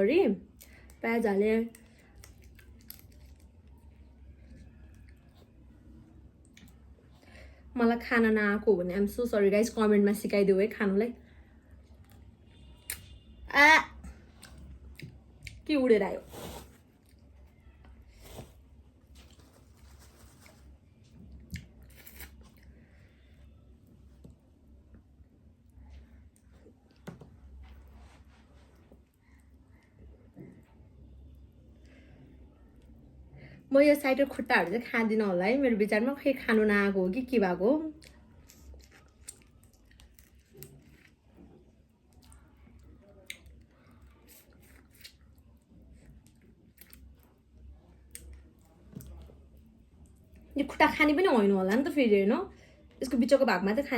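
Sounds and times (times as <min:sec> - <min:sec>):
faint chewing: 0:01.6 - 0:05.7, 0:14.1 - 0:23.3, 0:37.9 - 0:50.6.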